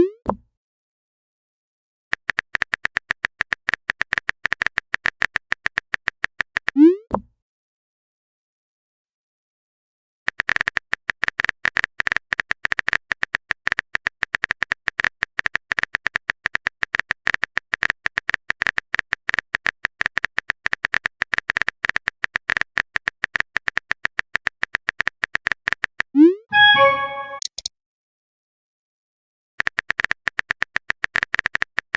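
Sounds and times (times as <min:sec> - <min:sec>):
keyboard typing clicks: 0:02.1 - 0:06.8, 0:10.3 - 0:27.7, 0:29.6 - 0:31.9
notification chime: 0:26.5 - 0:27.6.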